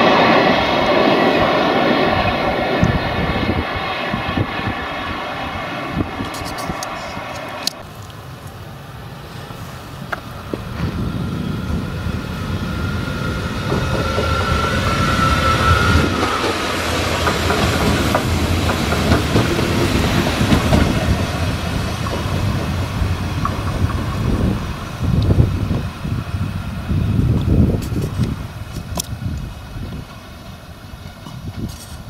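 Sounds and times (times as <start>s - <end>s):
high-pitched whine: 0.0s - 28.6s
train wheels clattering over rail joints: 12.7s - 25.8s.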